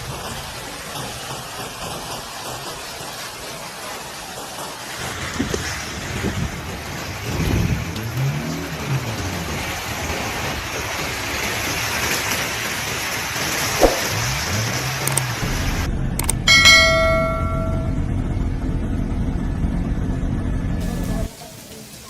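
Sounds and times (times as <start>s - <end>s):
heavy rain rushing: 0.0s - 18.2s, 20.8s - 22.0s
low wavering tones: 16.5s - 19.4s.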